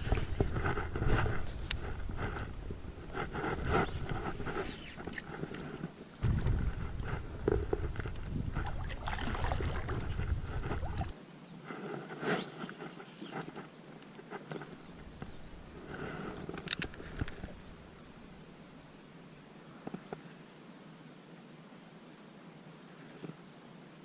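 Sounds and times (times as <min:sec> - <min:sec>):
water sloshing: 0:07.5 - 0:11.2.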